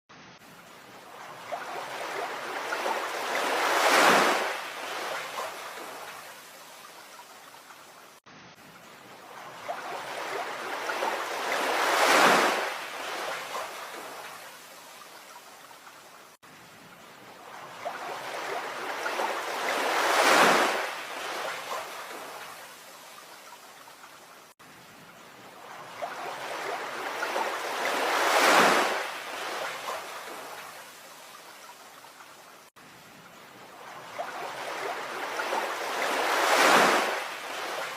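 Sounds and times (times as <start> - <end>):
ocean waves crashing: 0.5 - 7.6, 9.0 - 15.0, 17.3 - 23.2, 25.4 - 31.5, 33.6 - 37.9.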